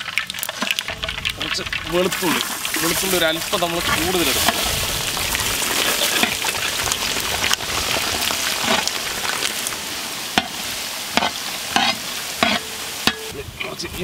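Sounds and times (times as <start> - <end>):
garlic sizzling in hot oil: 0.0 - 14.0
metal spatula scraping a pan: 11.2 - 13.8.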